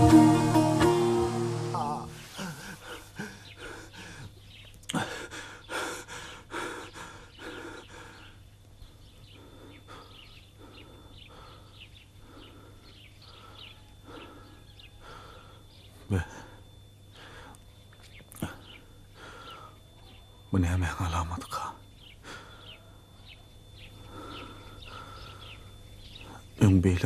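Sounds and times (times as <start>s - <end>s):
low hum: 0.0s - 4.6s
birds chirping: 0.0s - 27.0s.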